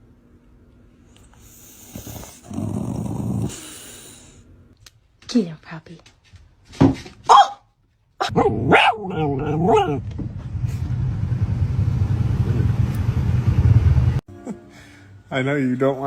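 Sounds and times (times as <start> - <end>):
dog barking: 7.3 - 10.0
steady low rumbling noise: 8.4 - 14.2.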